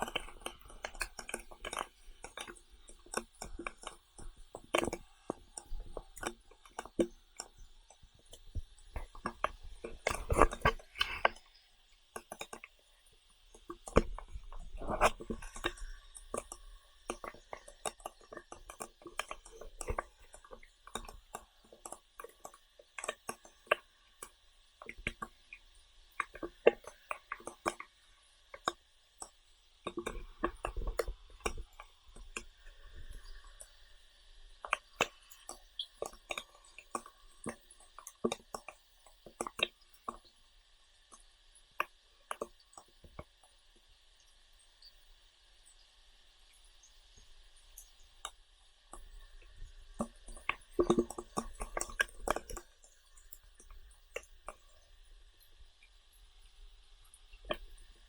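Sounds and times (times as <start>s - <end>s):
person chewing: 9.0s - 11.4s.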